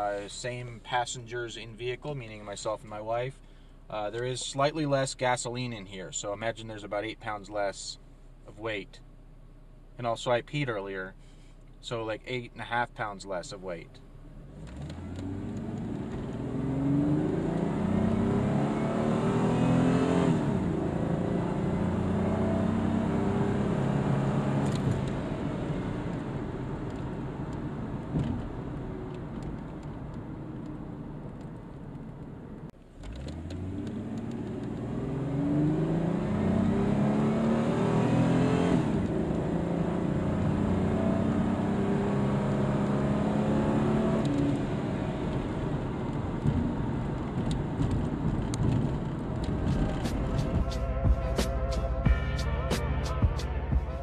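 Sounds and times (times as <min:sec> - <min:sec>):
car engine accelerating: 0:14.3 - 0:54.0.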